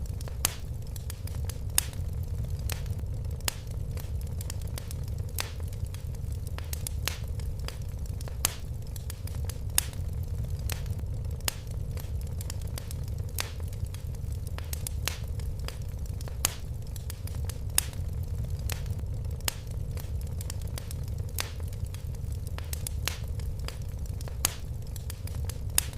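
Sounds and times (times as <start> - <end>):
fire crackling: 0.0 - 25.9
sharp pops and snaps: 0.0 - 25.9.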